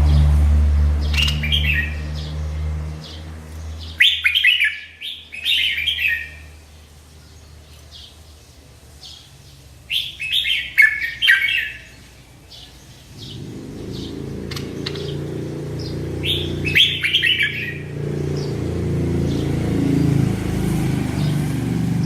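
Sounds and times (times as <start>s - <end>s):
low hum: 0.0s - 3.7s
bulbul singing falling notes: 13.2s - 22.0s.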